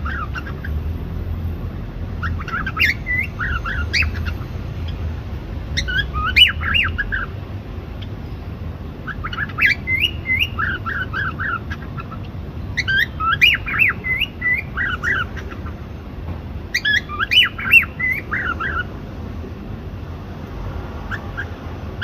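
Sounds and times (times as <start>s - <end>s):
cockatiel whistling and chirping: 0.0s - 0.8s, 2.2s - 5.0s, 5.8s - 7.3s, 9.0s - 12.2s, 12.8s - 15.7s, 16.7s - 18.9s.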